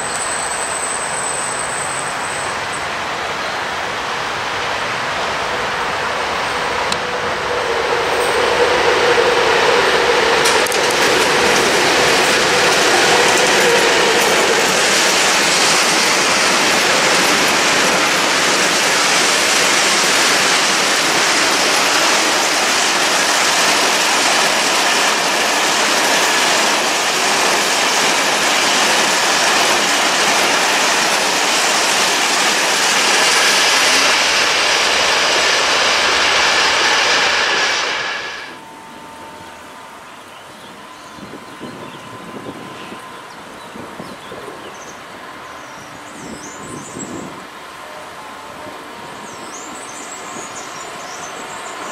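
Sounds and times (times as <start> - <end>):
diesel locomotive engine hum: 0.0 - 51.9
steel wheels clattering on rails: 7.8 - 38.0.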